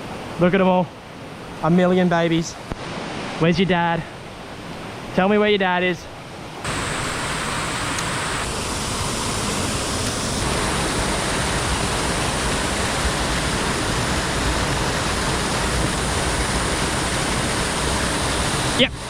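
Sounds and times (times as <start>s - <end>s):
creek water over rocks: 6.6s - 19.0s.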